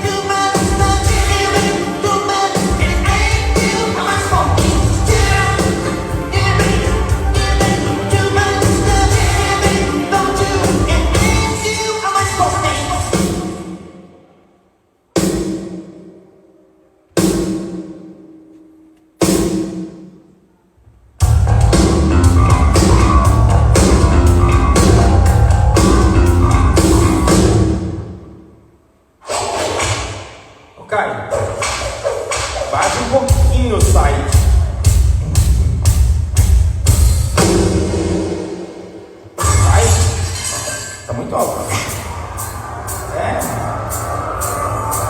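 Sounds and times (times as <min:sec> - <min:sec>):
person singing: 0:00.0 - 0:13.6
live band playing pop song: 0:00.0 - 0:13.8, 0:21.7 - 0:27.7
drum hits: 0:00.6 - 0:11.7, 0:15.2 - 0:16.2, 0:21.2 - 0:28.2, 0:31.6 - 0:40.6.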